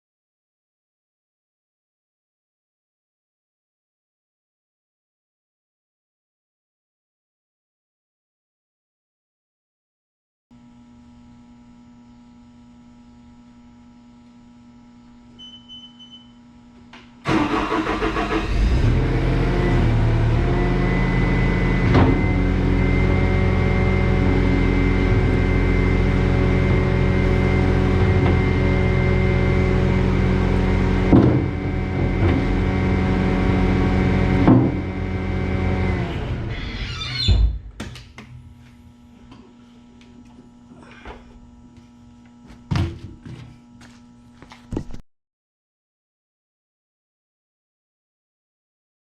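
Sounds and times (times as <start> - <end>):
diesel engine starting and running: 17.2 - 37.0.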